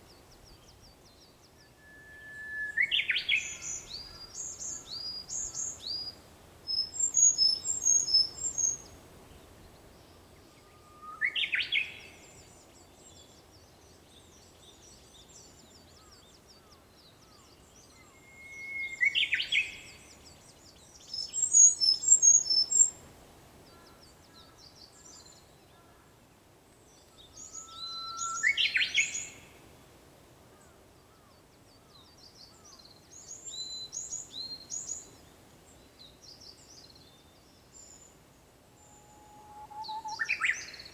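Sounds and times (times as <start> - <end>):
bush warbler whistling song: 0.1 - 9.0, 10.5 - 12.8, 17.2 - 23.0, 27.2 - 29.6, 31.9 - 35.3, 36.0 - 40.9.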